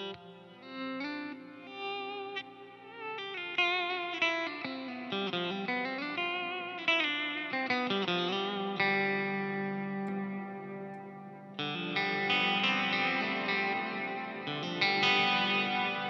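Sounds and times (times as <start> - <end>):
electric guitar with delay: 0.0 - 16.0.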